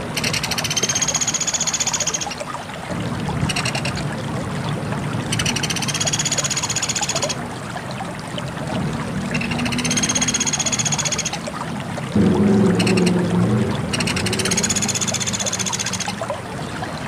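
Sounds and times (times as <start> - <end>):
low hum: 12.2 - 16.2
woodpecker trilling: 14.0 - 16.2.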